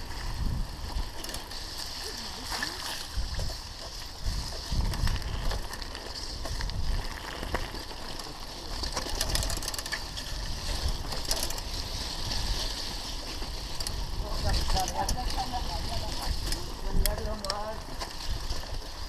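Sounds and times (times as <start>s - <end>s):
wind buffeting microphone: 0.0s - 1.2s, 2.8s - 5.8s, 6.4s - 7.7s, 10.1s - 19.0s
mountain bike rolling on dirt: 0.0s - 19.0s.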